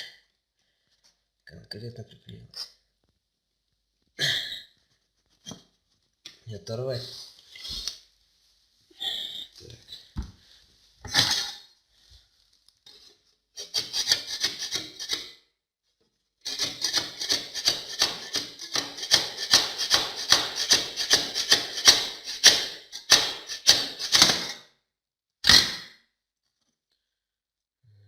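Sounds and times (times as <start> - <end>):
hand scraper scraping wall: 13.6 - 15.3, 16.5 - 24.6.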